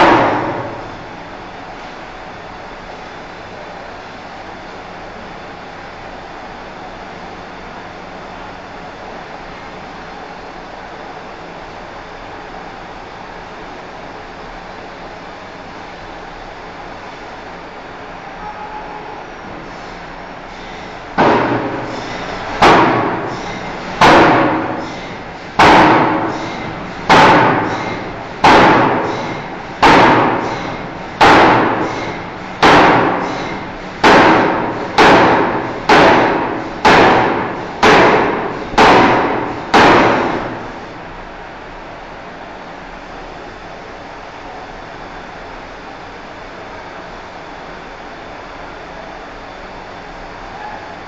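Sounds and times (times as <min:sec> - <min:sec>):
hammer striking steel bar: 0:00.0 - 0:00.9, 0:21.2 - 0:40.6
workshop hum: 0:00.0 - 0:51.0.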